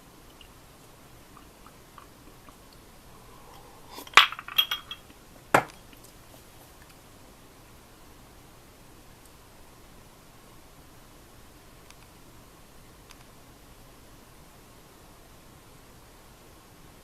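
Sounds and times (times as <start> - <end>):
dishes clinking: 3.9 - 6.0.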